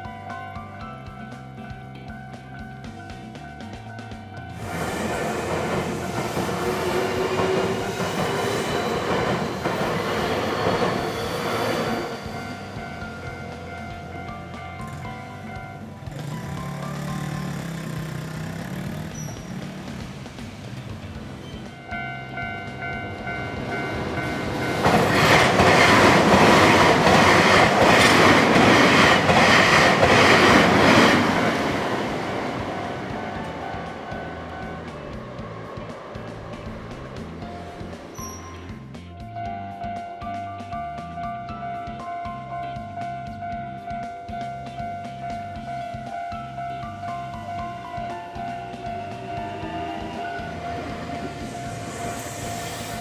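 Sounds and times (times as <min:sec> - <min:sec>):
level crossing warning bell: 0:00.0 - 0:19.6, 0:21.1 - 0:35.5, 0:37.4 - 0:53.0
train wheels on rails: 0:02.4 - 0:53.0.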